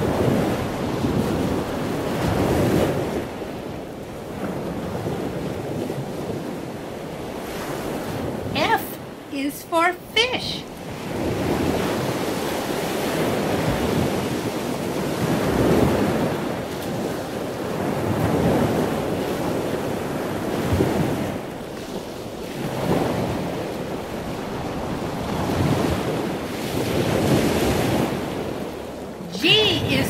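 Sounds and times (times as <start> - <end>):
ocean waves washing in: 0.0 - 30.0.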